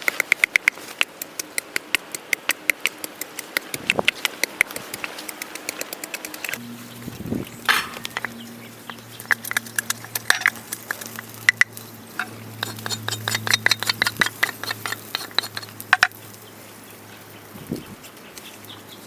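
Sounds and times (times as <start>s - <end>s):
sharp clicks and snaps: 0.0s - 6.6s, 8.1s - 16.2s.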